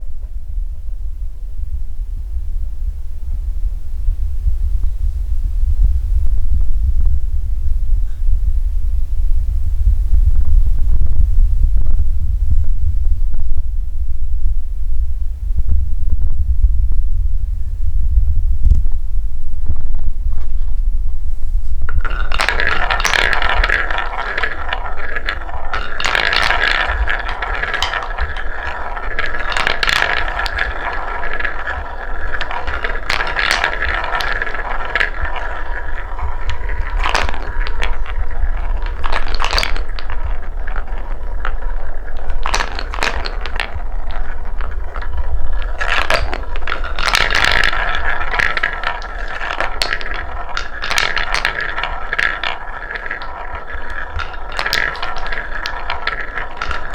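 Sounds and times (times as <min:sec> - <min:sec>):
wooden balls rolling on track: 0:21.7 - 0:56.9
balls knocking wooden track: 0:21.8 - 0:56.9.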